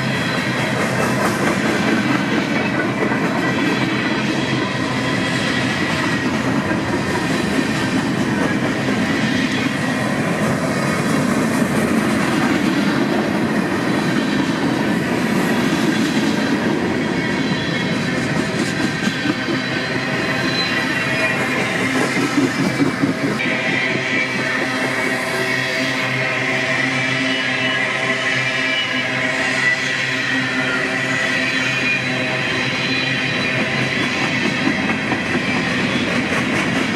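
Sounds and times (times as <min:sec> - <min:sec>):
train wheels clattering on rails: 0:00.0 - 0:26.8, 0:28.8 - 0:36.9
thin steady wheel squeal: 0:17.0 - 0:36.3.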